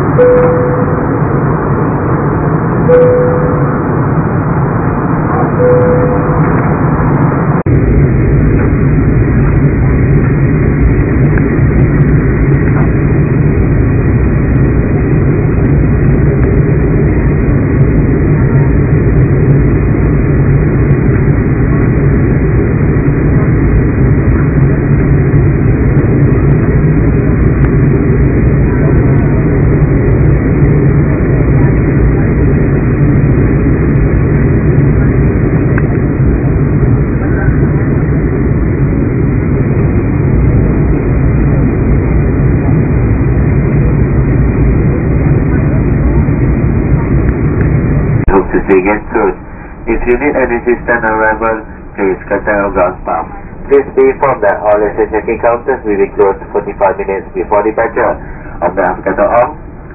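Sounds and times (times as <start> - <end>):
airliner engines rumbling in cabin: 0.0 - 59.9.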